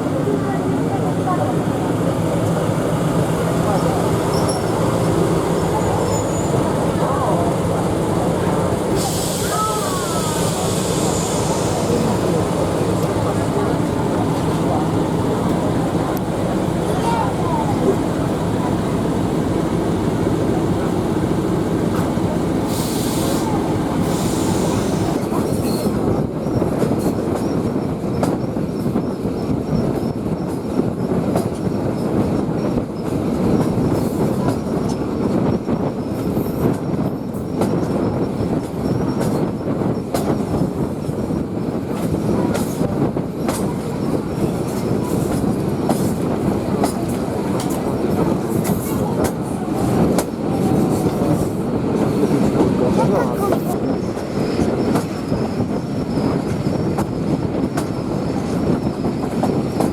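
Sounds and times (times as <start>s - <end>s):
train carriages rumbling: 0.0s - 59.9s
wheels squealing: 3.7s - 6.8s.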